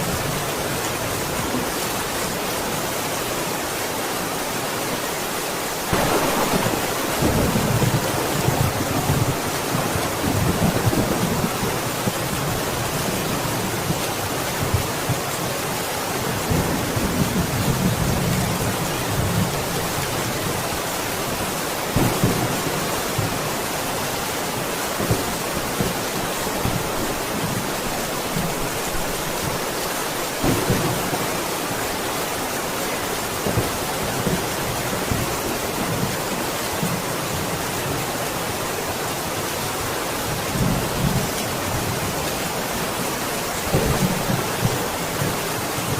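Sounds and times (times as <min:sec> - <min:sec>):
dense rain falling: 0:00.0 - 0:45.9.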